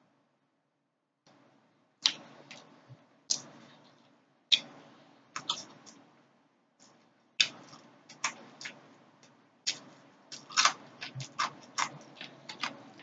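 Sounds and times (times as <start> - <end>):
crisp chewing and lip smacks: 5.4 - 6.0, 6.8 - 13.0.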